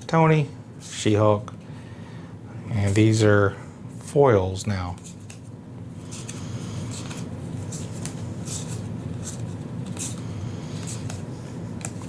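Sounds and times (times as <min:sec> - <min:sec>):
low background hum: 0:00.0 - 0:12.0
papery swishes and light clicks: 0:04.9 - 0:12.0
trading cards being flipped through: 0:04.9 - 0:12.0.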